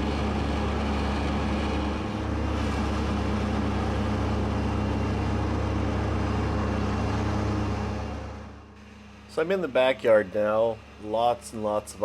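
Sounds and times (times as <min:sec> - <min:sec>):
tractor diesel engine mowing: 0:00.0 - 0:12.0.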